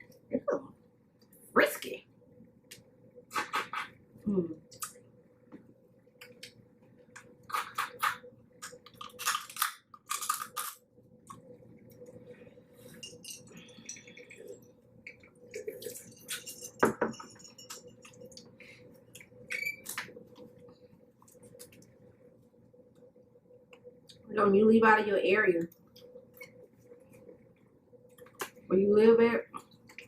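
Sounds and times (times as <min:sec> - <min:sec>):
crab shell cracking: 0:07.5 - 0:11.4.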